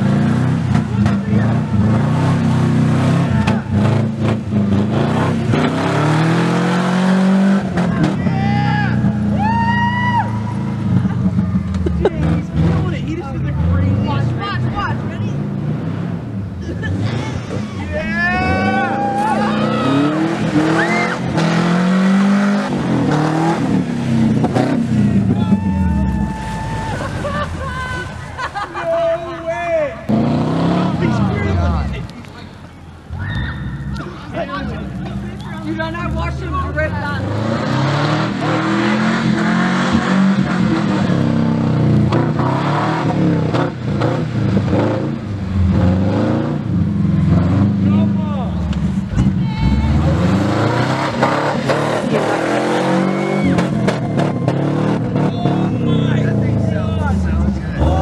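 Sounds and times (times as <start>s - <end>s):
car engine revving hard: 0.0s - 9.3s, 10.4s - 25.8s, 30.0s - 32.1s, 33.8s - 58.0s.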